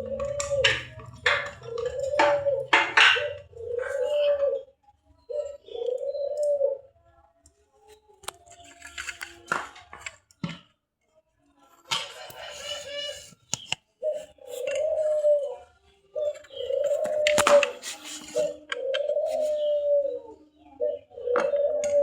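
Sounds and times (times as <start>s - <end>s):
dove cooing: 0.0s - 7.1s, 12.1s - 13.4s, 14.0s - 22.0s.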